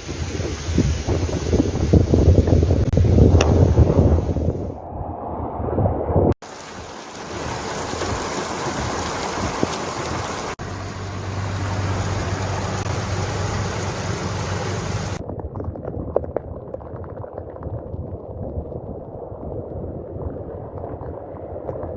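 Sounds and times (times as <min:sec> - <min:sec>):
wind rumbling on microphone: 0:00.0 - 0:21.9
heavy rain: 0:06.4 - 0:15.2.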